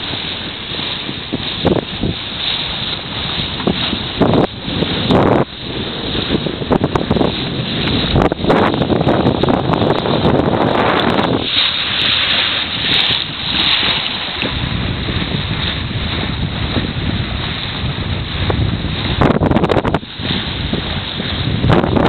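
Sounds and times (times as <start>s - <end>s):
rushing water: 0.0s - 22.0s
wind buffeting microphone: 0.0s - 22.0s.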